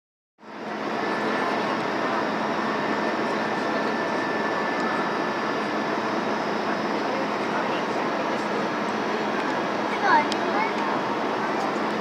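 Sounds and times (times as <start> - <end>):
airplane cabin engine rush: 0.4 - 12.0
thin steady whine: 0.4 - 12.0.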